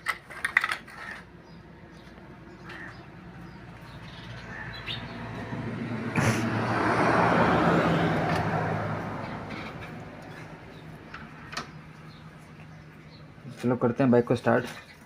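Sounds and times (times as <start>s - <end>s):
vehicle passing by: 2.4s - 13.2s.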